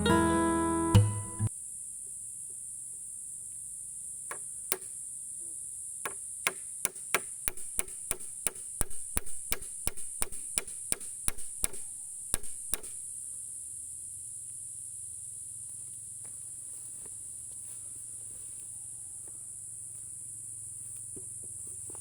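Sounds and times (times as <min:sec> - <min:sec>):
hand tool striking bamboo: 0:06.1 - 0:13.0.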